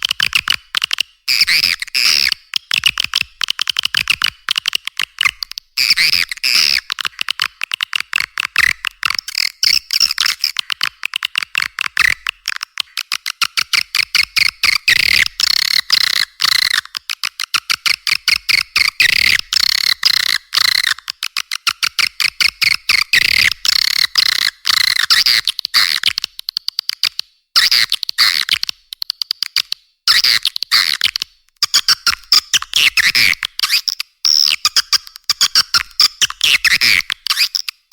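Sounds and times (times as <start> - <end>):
swiftlet chirping twitters and clicks: 31.7 - 37.8.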